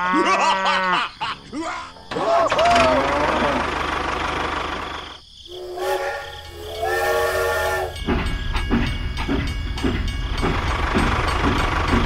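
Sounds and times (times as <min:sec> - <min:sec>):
steam train whistle: 0:05.5 - 0:08.1
train wheels clickety-clack: 0:06.5 - 0:12.0.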